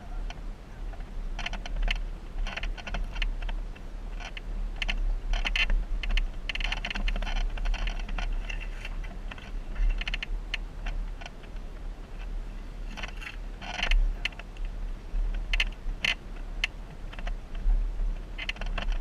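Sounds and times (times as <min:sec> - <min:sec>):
vehicle low rumble: 0:00.0 - 0:19.0
clicking and rattling: 0:04.2 - 0:11.6, 0:18.4 - 0:19.0.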